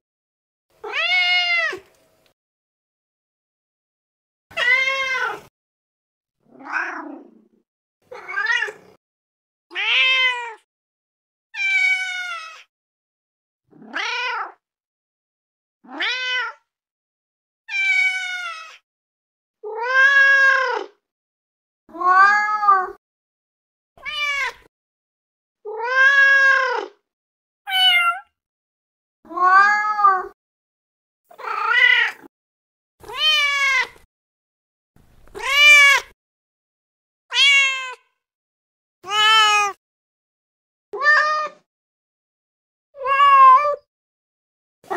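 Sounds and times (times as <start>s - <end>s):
cat meowing: 0.8s - 1.9s, 4.5s - 5.5s, 6.5s - 7.3s, 8.1s - 9.0s, 9.7s - 10.7s, 11.6s - 12.7s, 13.8s - 14.6s, 15.8s - 16.6s, 17.7s - 18.8s, 19.6s - 21.0s, 21.9s - 23.0s, 24.0s - 24.7s, 25.7s - 27.0s, 27.7s - 28.3s, 29.3s - 30.4s, 31.3s - 32.3s, 33.0s - 34.1s, 35.3s - 36.2s, 37.3s - 38.2s, 39.0s - 39.8s, 41.0s - 41.7s, 43.0s - 43.9s.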